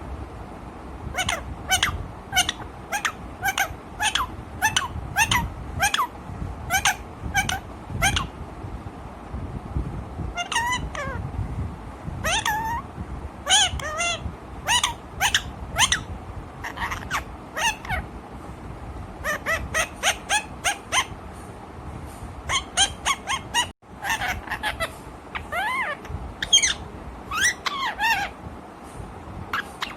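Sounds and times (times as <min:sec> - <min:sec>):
parrot calling: 0:01.1 - 0:08.3, 0:10.4 - 0:11.2, 0:12.2 - 0:12.8, 0:13.4 - 0:18.1, 0:19.2 - 0:21.2, 0:22.5 - 0:28.4, 0:29.5 - 0:29.9.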